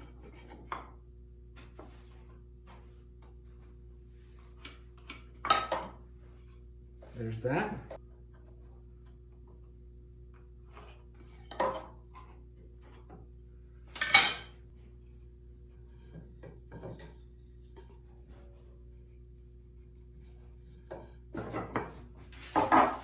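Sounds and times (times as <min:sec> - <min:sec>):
tools clattering: 0:14.0 - 0:14.6.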